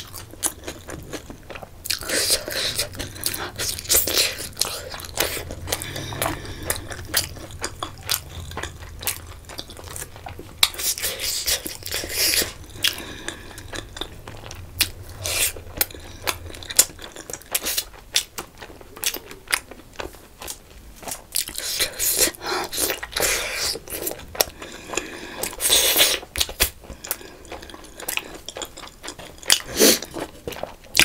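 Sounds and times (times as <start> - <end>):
wet mouth sounds: 1.8 - 19.8.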